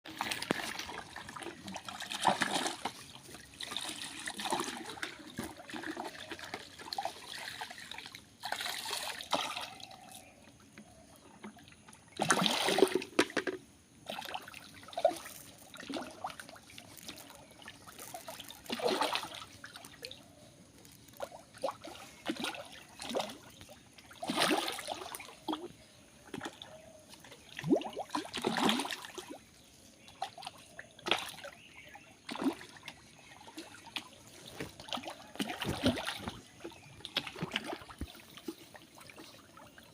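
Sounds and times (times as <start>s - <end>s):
pond water sloshing and splashing: 0.0s - 39.9s
faint water trickle: 14.2s - 28.4s.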